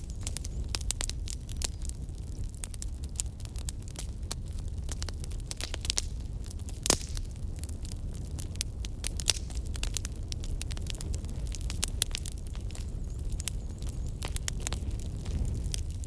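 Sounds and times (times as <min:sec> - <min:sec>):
low fire rumble: 0:00.0 - 0:16.0
wood fire crackling: 0:00.0 - 0:16.0.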